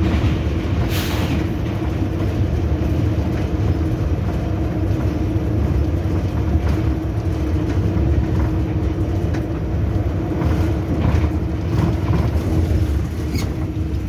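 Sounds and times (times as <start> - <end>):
locomotive rumble from cab: 0.0 - 14.0.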